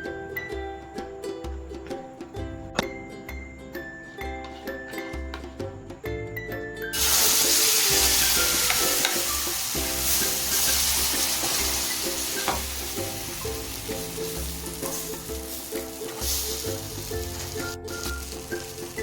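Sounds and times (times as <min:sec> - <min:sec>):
batter sizzling on a pan: 0:06.9 - 0:19.0.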